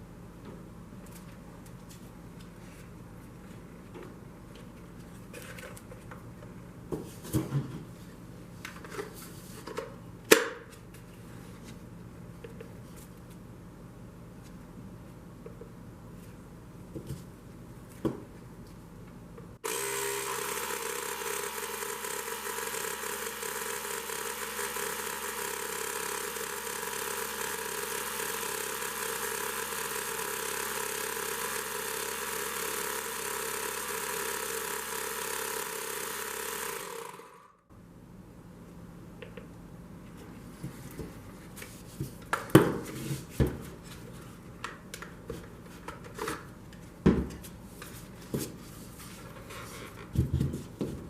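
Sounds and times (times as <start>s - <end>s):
tire inflator compressor running: 19.6s - 37.7s.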